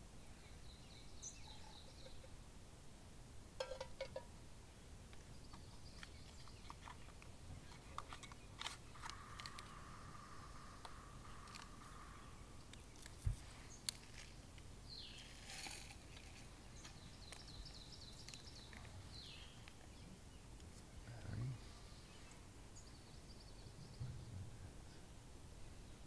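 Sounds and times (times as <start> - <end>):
bird chirping trill: 0.3 - 2.4, 8.1 - 13.9, 14.9 - 20.5.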